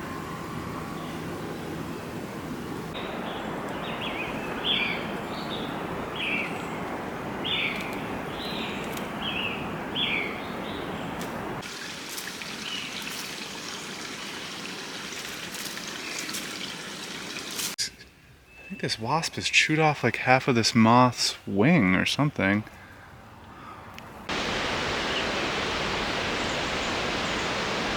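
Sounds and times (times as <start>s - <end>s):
bird chirping: 3.0s - 11.2s, 16.0s - 19.7s
water rushing: 9.1s - 17.8s, 24.3s - 27.9s
water trickling: 11.6s - 17.8s.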